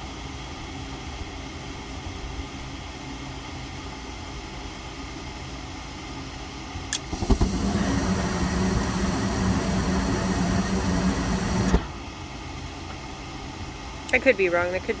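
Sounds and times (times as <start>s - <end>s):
furnace burners lighting and humming: 0.0s - 15.0s
gas valve clicking open: 6.9s - 12.2s.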